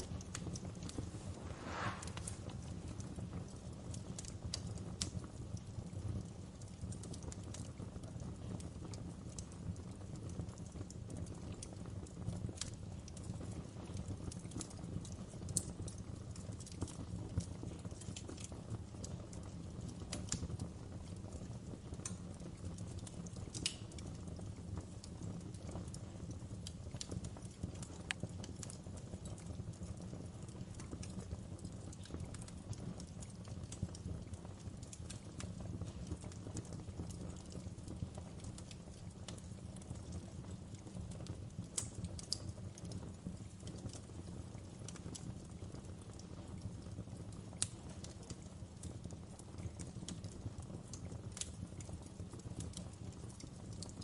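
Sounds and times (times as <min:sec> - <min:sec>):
low rumble of burning logs: 0:00.0 - 0:54.0
wood fire crackling and popping: 0:00.0 - 0:54.0.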